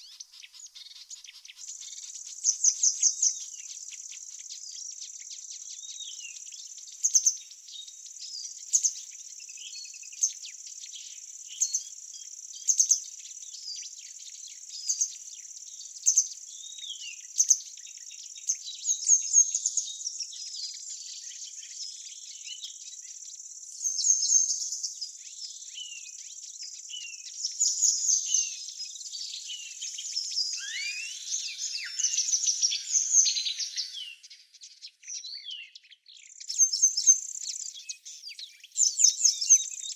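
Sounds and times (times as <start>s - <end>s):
birds chirping: 0.0s - 18.9s, 25.8s - 39.9s
high insect drone: 30.5s - 34.3s
loud short bird call: 30.6s - 34.2s.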